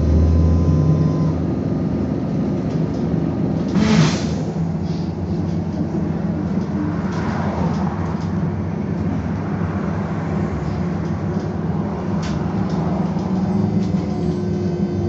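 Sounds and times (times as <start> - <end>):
road rumble: 0.0 - 15.0.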